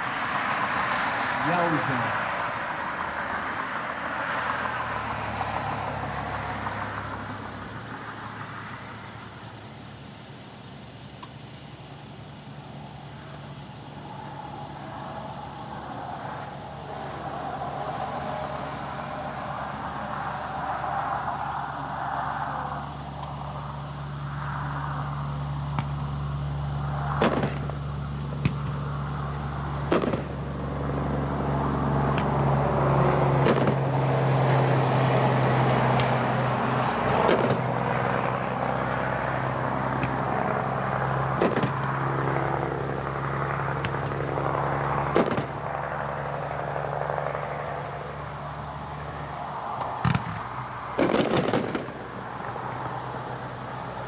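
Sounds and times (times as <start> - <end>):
steady low hum: 6.3 - 54.0
distant fireworks booming: 25.6 - 48.0, 49.8 - 53.8.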